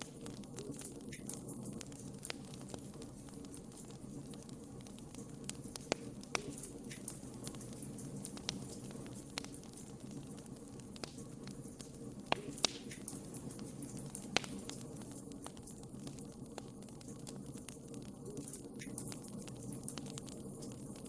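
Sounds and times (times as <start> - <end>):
fire crackling and popping: 0.0 - 21.0
fire flames rumbling: 0.0 - 21.0.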